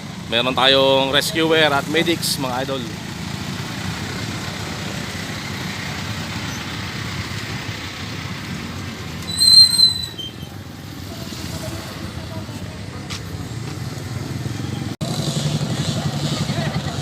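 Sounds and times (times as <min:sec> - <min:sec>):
motorcycle engines running: 0:00.0 - 0:17.0
high whistle-like tone: 0:09.3 - 0:10.4.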